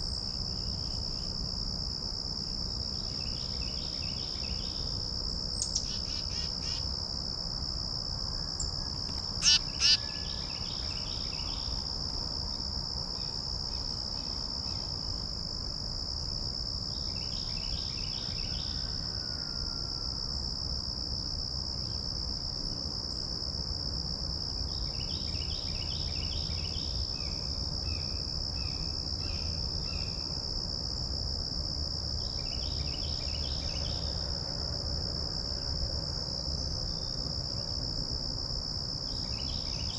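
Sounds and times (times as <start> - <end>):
crickets trilling: 0.0 - 39.9
rapid repeated animal calls: 9.4 - 10.2.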